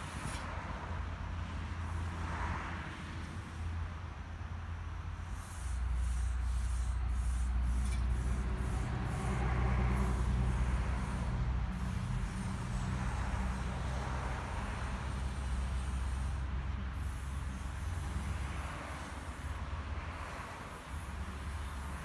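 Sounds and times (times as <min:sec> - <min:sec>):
electric train rumbling past: 0:05.2 - 0:16.4.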